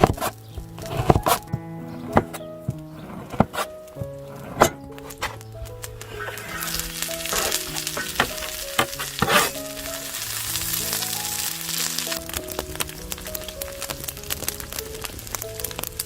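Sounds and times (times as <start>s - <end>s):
soft background music: 0.0s - 16.0s
food sizzling in oil: 6.0s - 13.3s.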